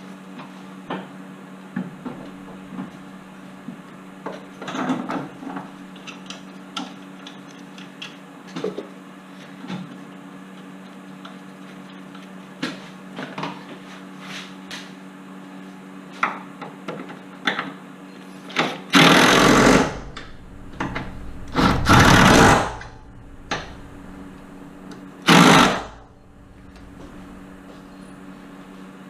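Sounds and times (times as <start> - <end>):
impact wrench bursts: 19.0 - 20.3, 21.6 - 22.8, 25.2 - 26.1.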